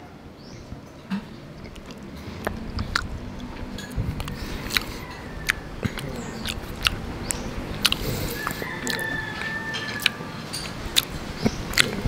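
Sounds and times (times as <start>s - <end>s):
mouth clicks and smacks: 1.6s - 12.0s
person chewing wetly: 1.6s - 12.0s.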